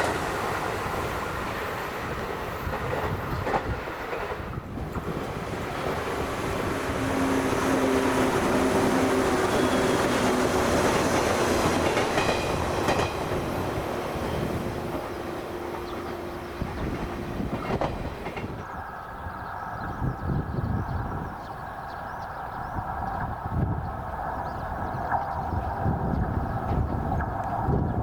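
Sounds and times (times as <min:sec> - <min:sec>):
electric train humming: 0:00.0 - 0:21.7.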